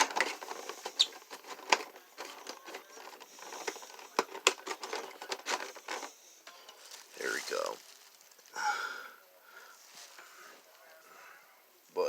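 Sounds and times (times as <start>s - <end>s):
packaging clicks and taps: 0.0s - 6.1s.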